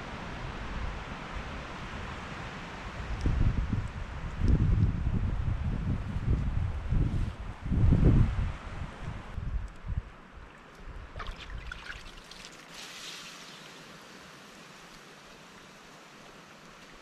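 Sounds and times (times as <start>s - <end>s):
wind rumble on microphone: 0.0s - 12.1s
water lapping and trickling: 9.7s - 17.0s
water splash: 10.5s - 14.4s.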